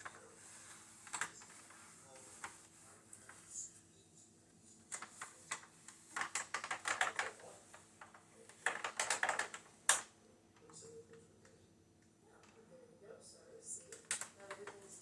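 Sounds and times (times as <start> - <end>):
light sharp clicks and rattles: 4.8 - 12.6, 13.8 - 15.0.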